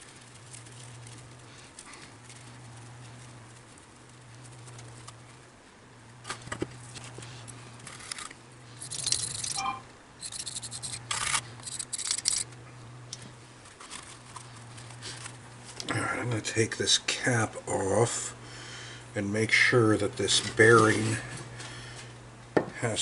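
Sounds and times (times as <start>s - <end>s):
faint low hum: 0.0s - 23.0s
clicks and scraping of metal parts: 7.8s - 12.6s.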